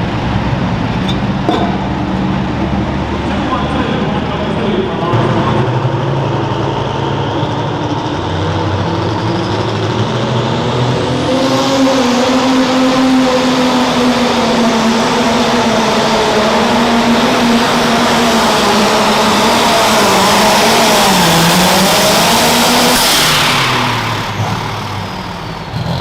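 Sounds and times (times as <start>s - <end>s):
diesel tractor engine running hard: 0.0s - 26.0s.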